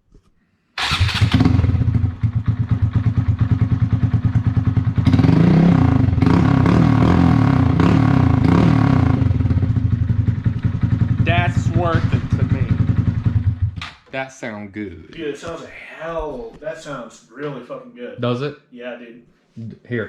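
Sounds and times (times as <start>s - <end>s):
motorcycle engine idling and revving: 0.8s - 13.9s.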